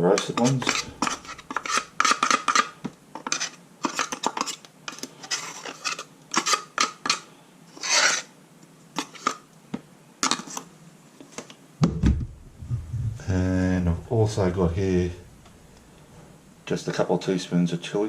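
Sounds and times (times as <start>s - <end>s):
utensil scraping a dish: 0.0s - 8.3s.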